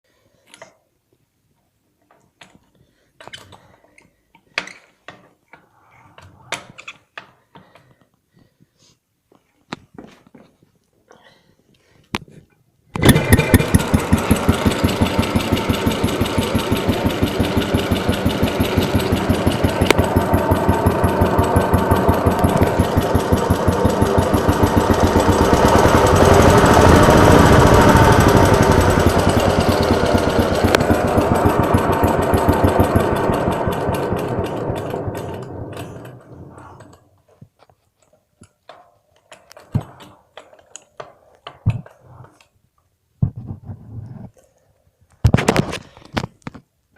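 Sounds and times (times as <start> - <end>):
small engine running: 13.0 - 36.9.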